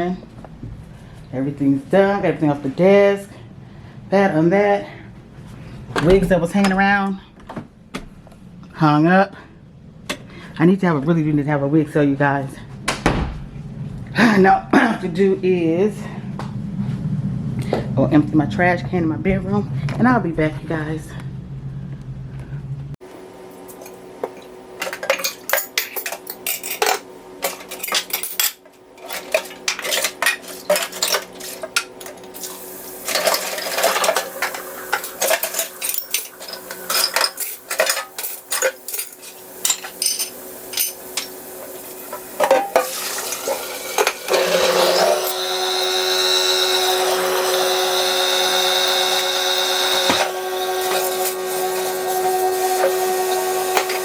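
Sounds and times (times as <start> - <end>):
machine hum with high whine: 12.1 - 54.0
household items clattering: 24.3 - 41.4, 42.1 - 45.4.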